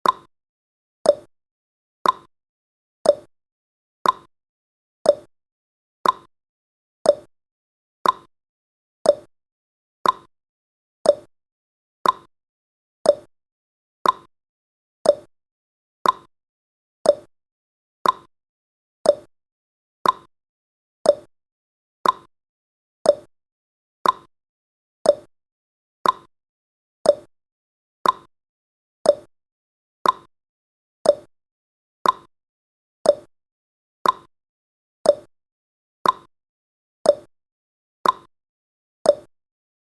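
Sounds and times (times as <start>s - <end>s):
clock ticking: 2.0s - 2.3s, 4.0s - 4.3s, 6.0s - 6.3s, 8.0s - 8.3s, 10.0s - 10.3s, 12.0s - 12.3s, 14.0s - 14.3s, 15.1s - 15.3s, 16.0s - 16.3s, 18.0s - 18.3s, 20.0s - 20.3s, 21.1s - 21.3s, 22.0s - 22.3s, 24.0s - 24.3s, 26.0s - 26.3s, 28.0s - 28.3s, 29.1s - 29.3s, 30.0s - 30.3s, 31.1s - 31.3s, 32.0s - 32.3s, 33.1s - 33.3s, 34.0s - 34.3s, 35.1s - 35.3s, 36.0s - 36.3s, 38.0s - 38.3s, 39.1s - 39.3s.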